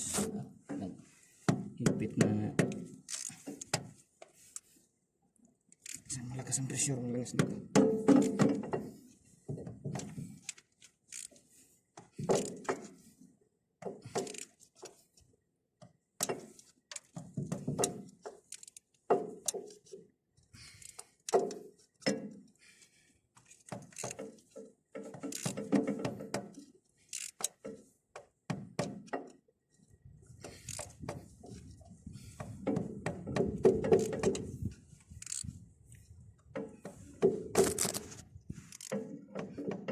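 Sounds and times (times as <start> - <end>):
hand tools knocking on metal: 32.5 - 34.5.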